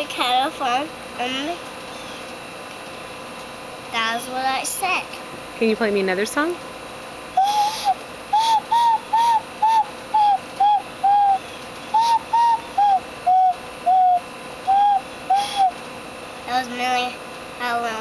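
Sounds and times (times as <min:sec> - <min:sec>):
bird whistle hooting notes: 0:07.3 - 0:15.8.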